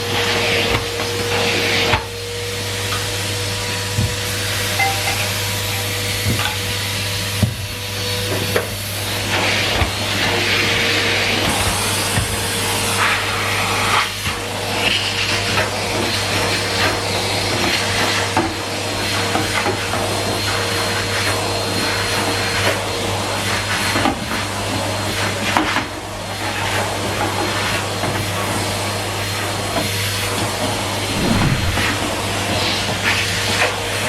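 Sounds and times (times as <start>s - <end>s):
vacuum cleaner running: 0.0s - 4.8s, 5.4s - 24.0s.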